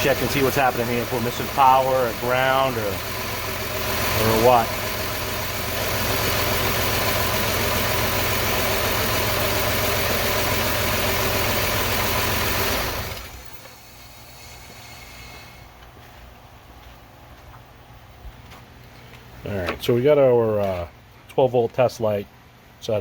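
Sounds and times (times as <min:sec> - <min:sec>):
engine idling with misfire: 0:00.0 - 0:16.1.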